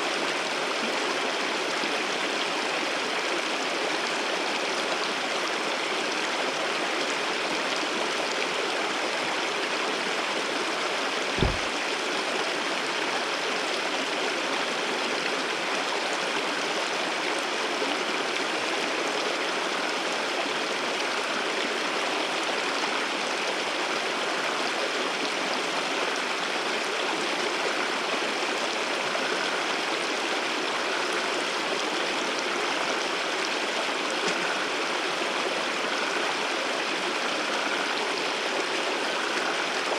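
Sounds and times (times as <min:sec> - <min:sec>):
low thump: 0:11.4 - 0:11.8
waterfall rushing: 0:11.4 - 0:11.8.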